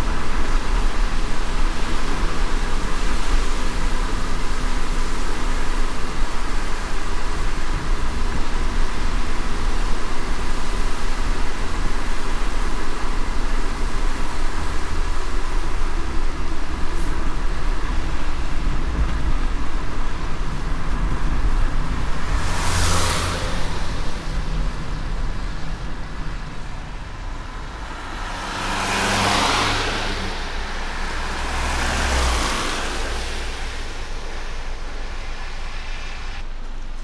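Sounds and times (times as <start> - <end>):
car driving on wet road: 0.0 - 37.0
whooshes of passing vehicles: 13.4 - 37.0.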